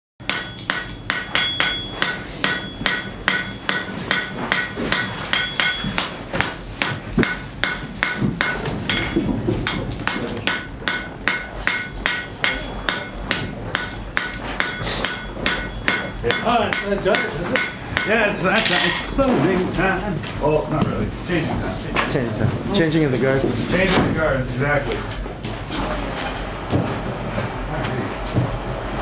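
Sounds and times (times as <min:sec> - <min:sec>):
hammer striking steel on anvil: 0:00.2 - 0:19.2.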